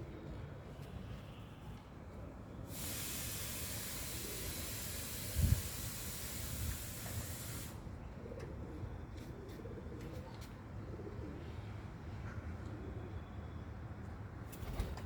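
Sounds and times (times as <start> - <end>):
steady hiss: 2.7 - 7.9
pigeons cooing: 8.1 - 11.7.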